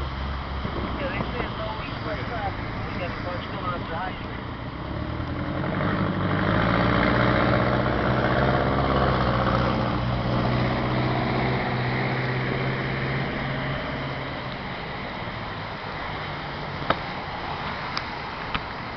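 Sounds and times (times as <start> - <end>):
vehicle engine humming: 0.0 - 18.9.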